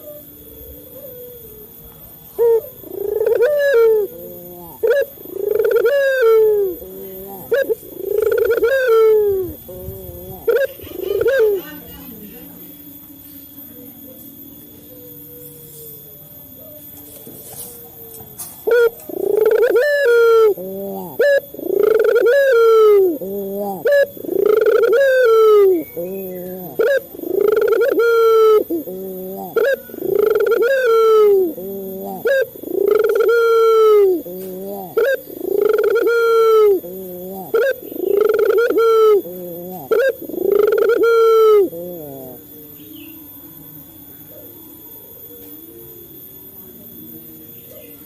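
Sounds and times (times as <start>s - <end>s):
dove cooing: 0.0s - 48.0s.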